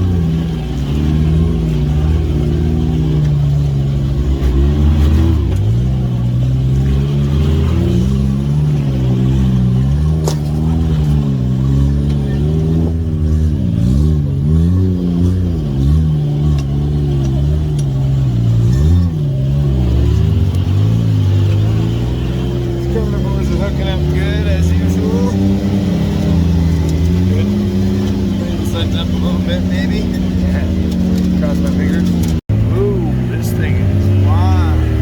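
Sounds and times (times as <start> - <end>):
engine revving on a trail: 0.0 - 35.0.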